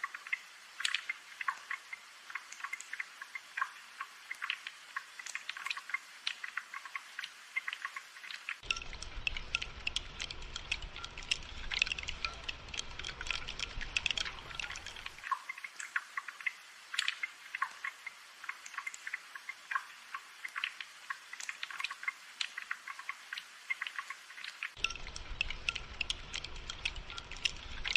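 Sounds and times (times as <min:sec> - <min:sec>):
raindrops pattering: 0:00.0 - 0:27.9.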